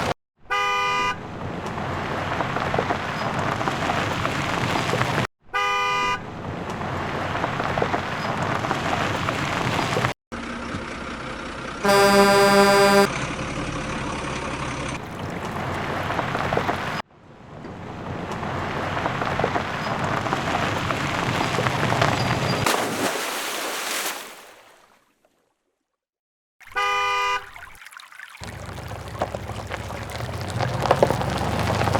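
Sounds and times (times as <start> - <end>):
vehicle horn honking: 0.5 - 1.2, 11.8 - 13.1, 26.8 - 27.4
splashing water rushing: 20.2 - 24.6, 27.8 - 31.9.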